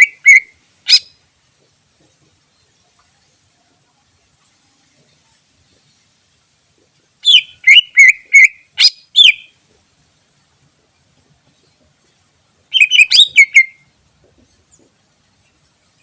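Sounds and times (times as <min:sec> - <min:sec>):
bird singing whistled notes: 0:00.0 - 0:01.2, 0:07.2 - 0:09.6, 0:12.7 - 0:13.9.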